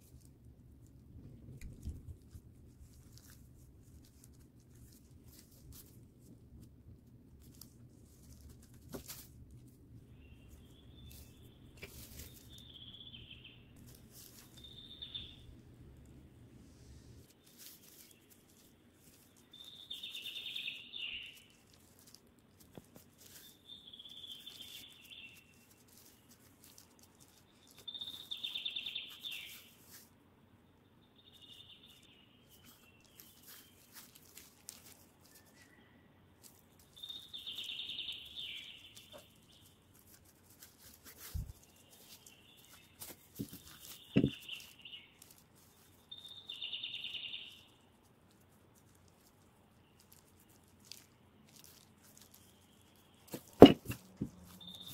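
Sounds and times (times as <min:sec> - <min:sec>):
gloved hands working dough: 0:00.0 - 0:54.9
bird singing short phrases: 0:14.5 - 0:15.5
sharp knocks: 0:53.4 - 0:54.2.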